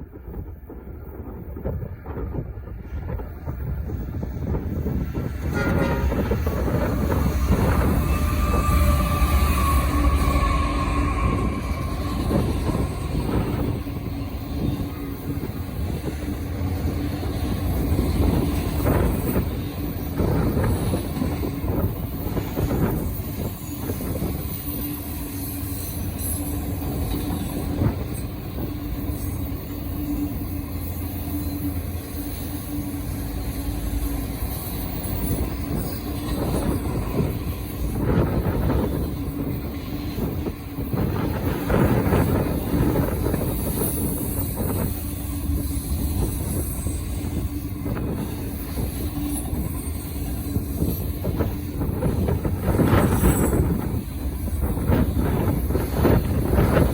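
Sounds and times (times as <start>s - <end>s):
wind rumble on microphone: 0.0s - 25.4s, 26.0s - 30.4s, 33.9s - 56.9s
diesel freight train passing: 0.0s - 56.9s.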